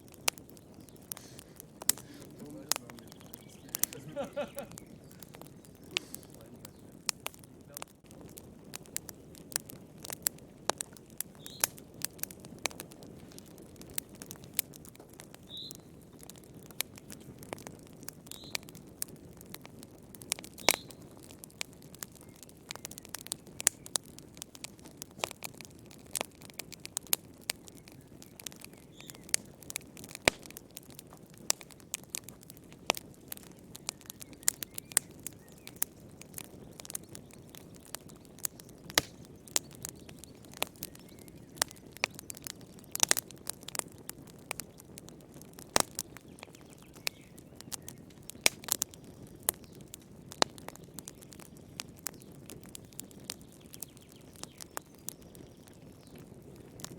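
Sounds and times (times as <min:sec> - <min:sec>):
soft rush of flame: 0:00.0 - 0:45.0
wood fire crackling and popping: 0:00.0 - 0:56.9.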